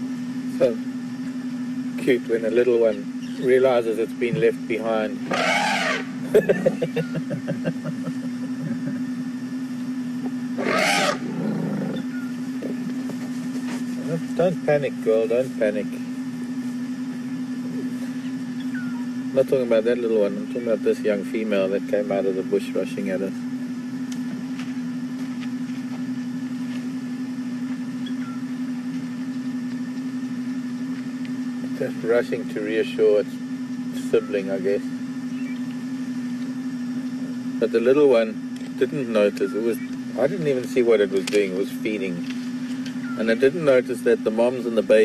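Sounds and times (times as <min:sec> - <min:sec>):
vehicle engine idling: 0:00.0 - 0:45.0
elephant trumpeting: 0:04.8 - 0:07.1, 0:10.5 - 0:13.0
short pulses: 0:05.1 - 0:07.2, 0:10.5 - 0:12.9.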